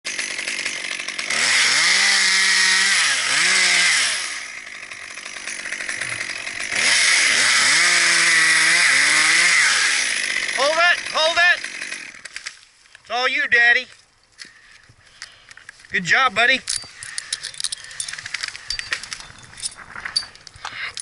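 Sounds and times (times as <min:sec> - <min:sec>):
chainsaw revving and idling: 0:00.1 - 0:12.6.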